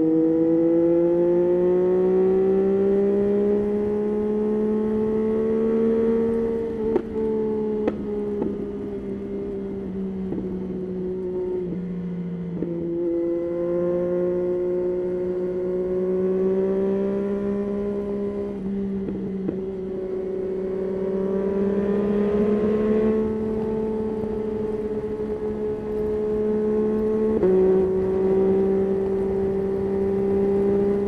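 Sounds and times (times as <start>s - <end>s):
motorcycle engine running: 17.3s - 31.0s.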